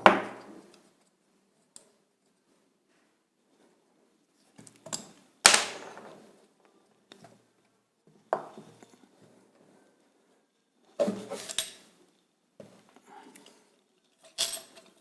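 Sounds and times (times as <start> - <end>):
metal parts clanking: 14.3 - 14.8.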